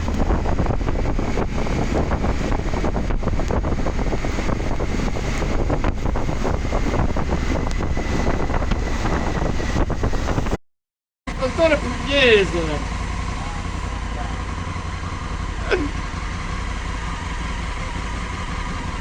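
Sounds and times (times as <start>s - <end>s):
low rumble: 0.0s - 10.6s
wind buffeting microphone: 0.0s - 10.6s.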